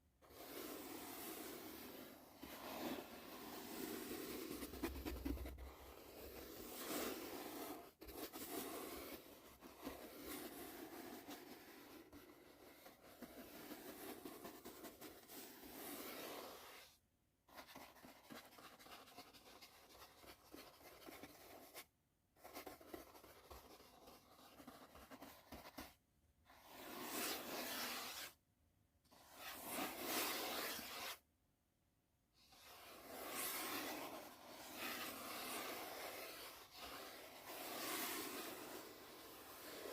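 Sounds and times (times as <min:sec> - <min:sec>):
brush sweeping: 0:00.2 - 0:16.9, 0:26.5 - 0:28.4, 0:29.2 - 0:31.2, 0:32.5 - 0:39.9.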